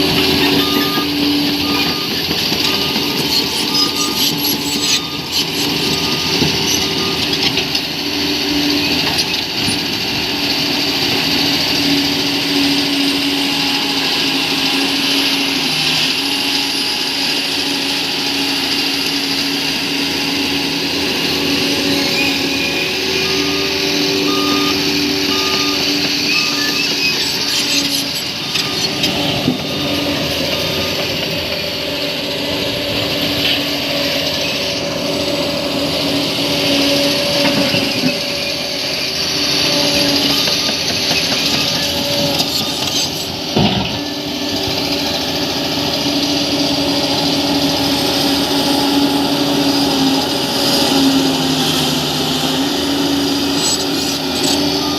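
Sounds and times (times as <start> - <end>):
reversing alarm beeping: 0.0 - 9.8, 20.9 - 33.1, 36.6 - 44.2, 51.2 - 54.9
bulldozer diesel engine: 0.0 - 54.9.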